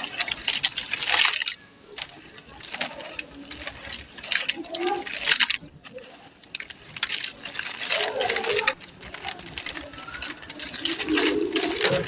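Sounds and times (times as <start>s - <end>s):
brittle chunks crushed by hand: 0.0s - 12.0s.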